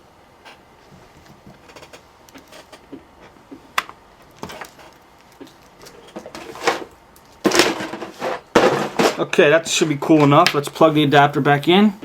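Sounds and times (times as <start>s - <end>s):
small objects handled on workbench: 4.2s - 9.3s.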